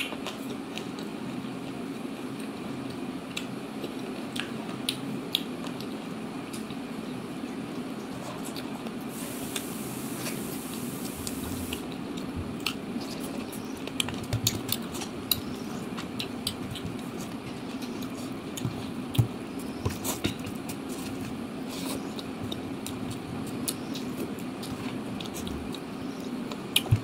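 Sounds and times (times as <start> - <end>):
steady low hum: 0.0 - 27.0
chewing: 2.4 - 6.8, 10.3 - 27.0
soft hiss: 9.1 - 11.8
fingers mixing food on a plate: 11.3 - 27.0.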